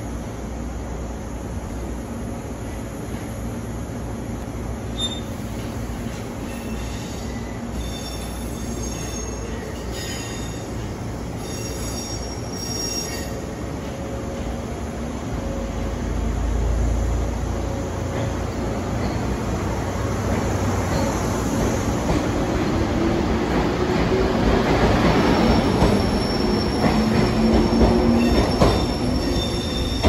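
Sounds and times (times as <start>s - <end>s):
train rumble: 0.0s - 30.0s
brake squeals: 5.0s - 5.4s.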